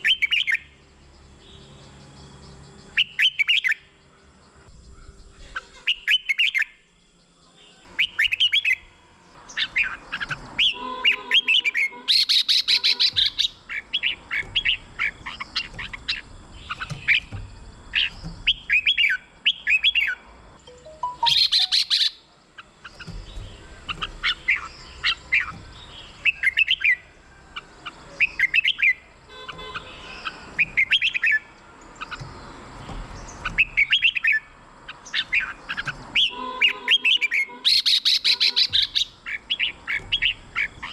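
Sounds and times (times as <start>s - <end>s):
harsh rattling bird call: 7.9s - 20.3s, 21.2s - 40.9s
bird whistled song phrases: 18.0s - 22.2s, 36.2s - 40.9s.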